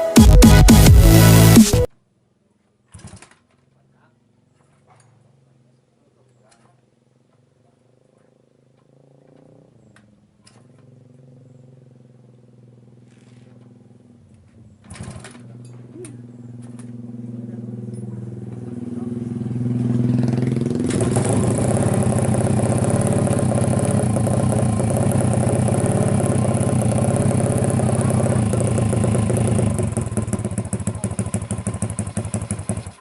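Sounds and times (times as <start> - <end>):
motorcycle engine revving: 7.9 - 33.0.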